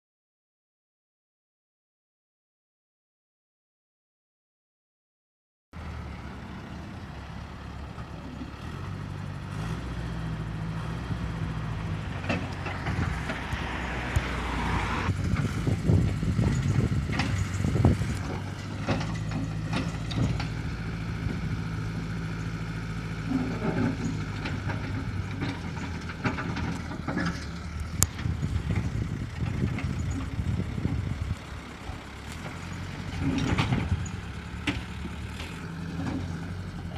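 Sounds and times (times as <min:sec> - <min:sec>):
excavator diesel engine running: 0:05.8 - 0:36.9
metal clanks and knocks: 0:11.8 - 0:13.8, 0:15.2 - 0:20.7, 0:23.2 - 0:31.0, 0:31.8 - 0:36.9.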